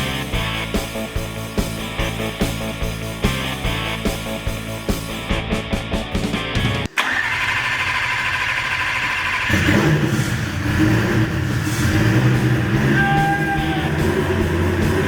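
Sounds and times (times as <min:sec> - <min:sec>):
rock music with steady beat: 0:00.0 - 0:06.9, 0:11.6 - 0:15.0
race car engine running: 0:07.4 - 0:15.0.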